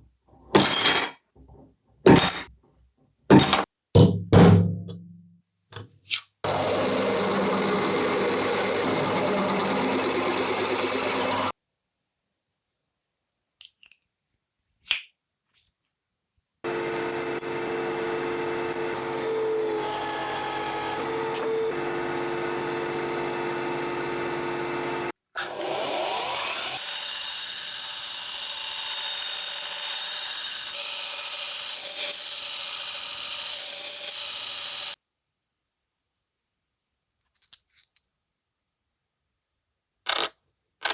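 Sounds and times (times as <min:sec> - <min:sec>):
workshop tool motor whining: 0:06.4 - 0:11.5, 0:16.7 - 0:35.0.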